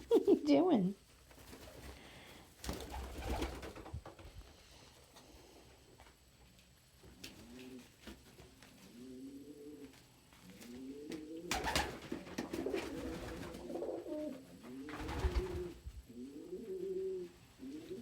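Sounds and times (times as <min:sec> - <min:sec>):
pigeons cooing: 0:08.8 - 0:18.0.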